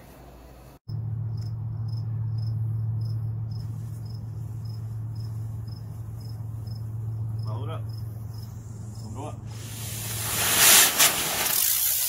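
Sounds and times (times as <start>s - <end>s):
steady low hum: 0.0s - 10.5s
crickets chirping: 0.9s - 11.8s.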